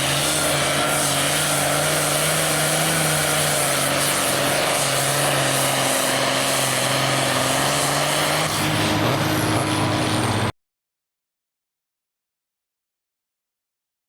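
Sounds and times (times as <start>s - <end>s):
tractor engine at high revs: 0.0s - 10.5s.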